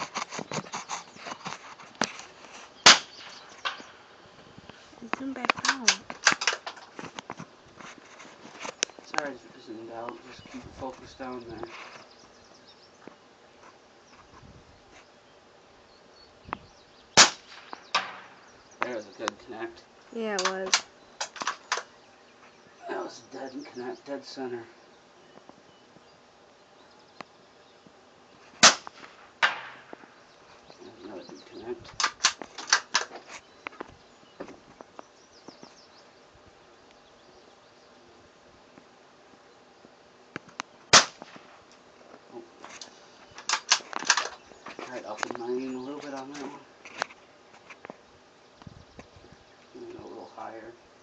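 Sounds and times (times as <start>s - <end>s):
faint insect chirping: 0.0s - 51.0s
rifle shot: 2.8s - 3.9s, 17.2s - 18.4s, 28.6s - 29.9s, 40.9s - 41.6s
rifle bolt loud sharp noises: 2.8s - 4.0s, 5.6s - 6.8s, 17.2s - 18.4s, 20.4s - 21.9s, 28.6s - 30.0s, 31.9s - 33.2s, 40.9s - 41.8s, 43.4s - 44.4s
bullet pinging off target: 28.6s - 30.1s.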